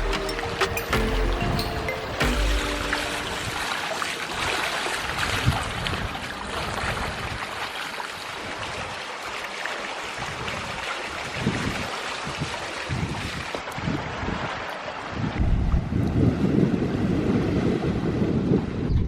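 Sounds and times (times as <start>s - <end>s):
water rushing along boat hulls: 0.0s - 18.8s
wind buffeting microphone: 10.2s - 19.0s.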